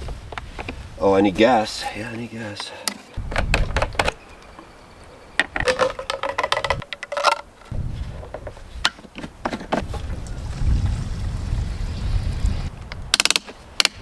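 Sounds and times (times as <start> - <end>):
clicks and knocks of handling: 2.5 - 4.7, 5.4 - 7.7
low rumbling: 9.8 - 12.8.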